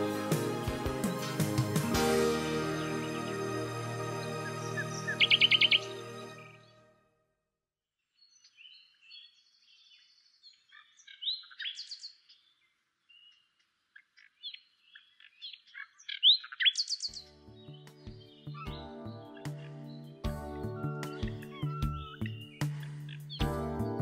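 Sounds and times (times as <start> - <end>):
music: 0.0 - 7.2, 17.2 - 24.0
bird singing: 2.6 - 6.9, 8.2 - 24.0.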